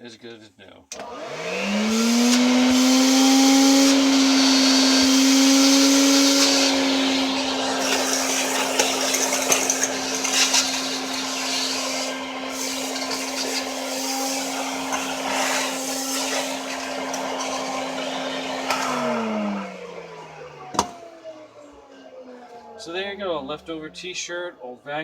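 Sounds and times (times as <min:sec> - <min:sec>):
vacuum motor winding down: 0:00.9 - 0:24.0
vacuum cleaner running: 0:00.9 - 0:24.2.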